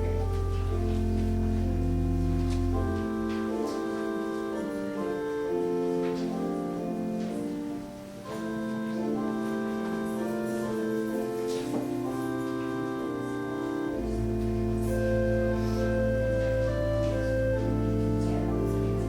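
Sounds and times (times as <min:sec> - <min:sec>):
organ playing slow chords: 0:00.0 - 0:19.0.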